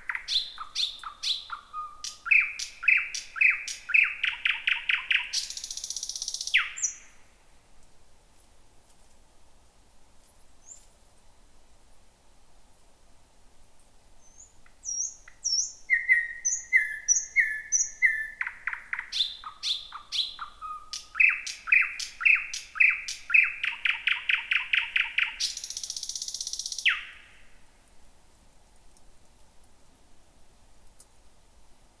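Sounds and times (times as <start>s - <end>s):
nightingale singing: 0.0s - 7.3s, 14.2s - 27.6s.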